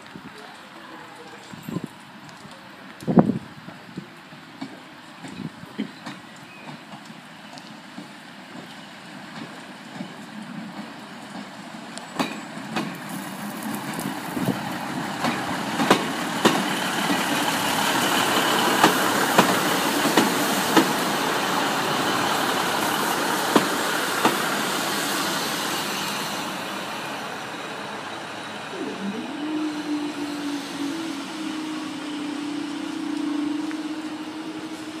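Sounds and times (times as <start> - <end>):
wheels clacking on rail joints: 0.4 - 27.4
diesel train rumbling past: 2.0 - 35.0
engine tone rising in pitch: 27.6 - 35.0.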